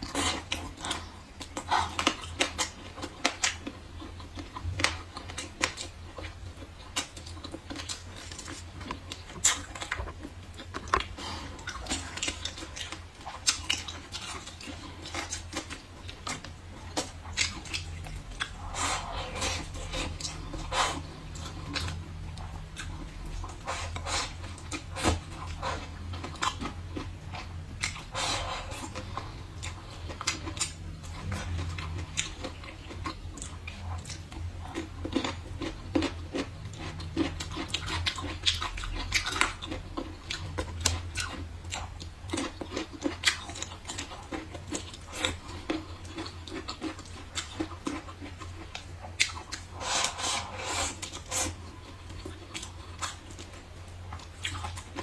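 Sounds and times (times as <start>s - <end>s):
steady low hum: 0.0s - 55.0s
wet crunchy chewing: 0.0s - 55.0s.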